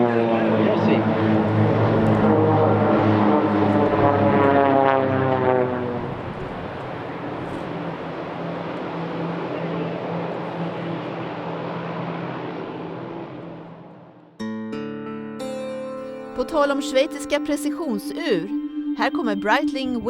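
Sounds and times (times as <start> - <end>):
propeller planes flying past: 0.0 - 14.4.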